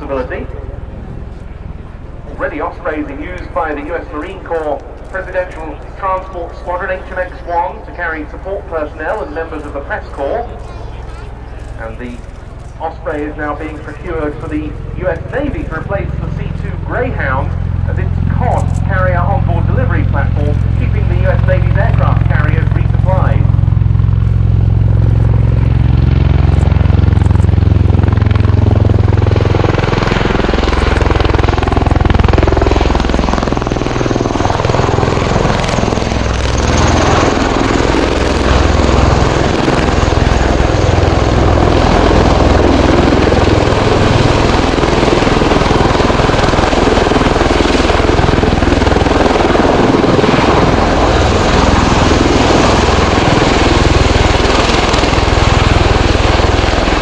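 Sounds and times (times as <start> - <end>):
tiltrotor aircraft flying past: 0.0 - 57.0.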